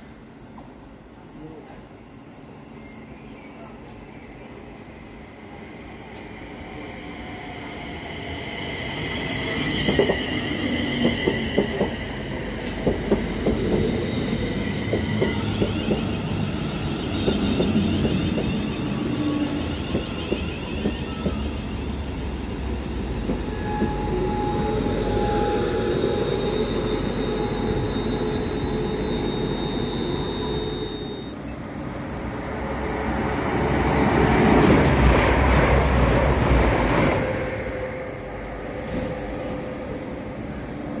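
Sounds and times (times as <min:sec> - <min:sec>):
train passing at speed: 0:00.0 - 0:41.0
electric train pulling away: 0:05.9 - 0:41.0.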